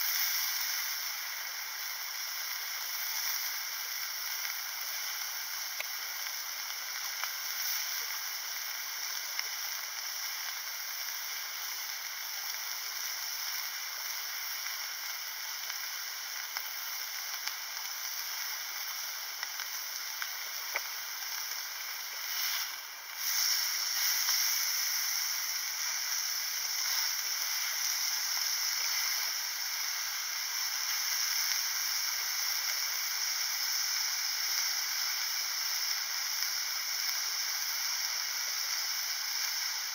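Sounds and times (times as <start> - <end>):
beef sizzling in frying pan: 0.0 - 39.9
small pops: 5.8 - 6.0, 19.4 - 24.7.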